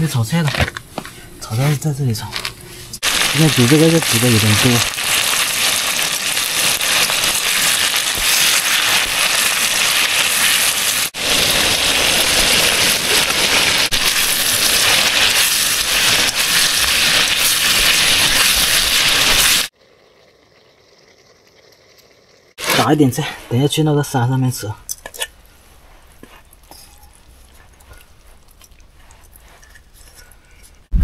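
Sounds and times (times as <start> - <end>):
food sizzling in a hot pan: 3.0 - 19.7.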